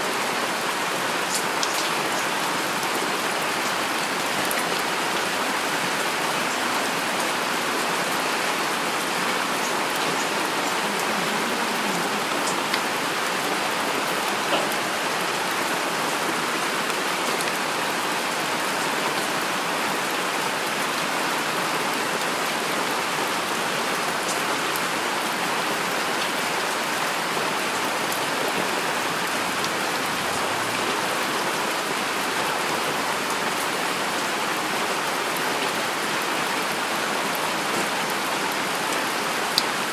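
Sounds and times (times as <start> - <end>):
heavy rain falling: 0.0 - 39.9
raindrop ticks: 1.3 - 1.9.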